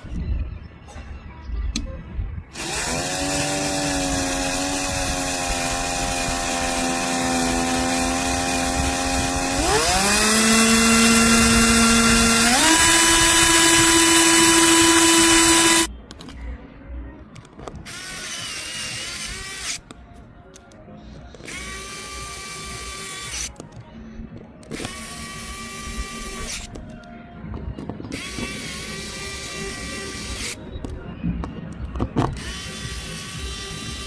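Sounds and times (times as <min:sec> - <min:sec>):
model engine high whine: 0:07.3 - 0:15.9.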